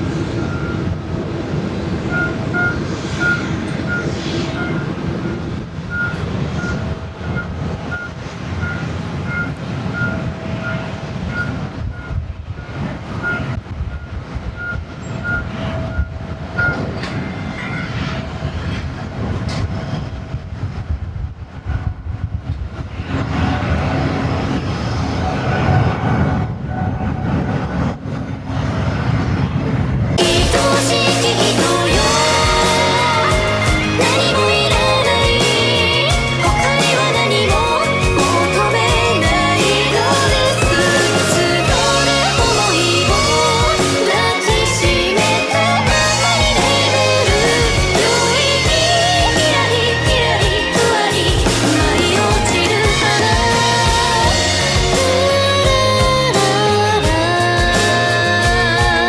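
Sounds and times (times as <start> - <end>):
vehicle reversing beeper: 0.4 - 1.0, 2.1 - 18.3
airport apron rumble: 22.6 - 59.0.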